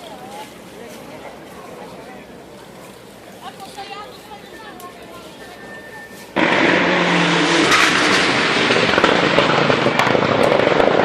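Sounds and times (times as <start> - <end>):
rally car engine at high revs: 6.4 - 11.0
sharp engine cracks: 6.4 - 11.0.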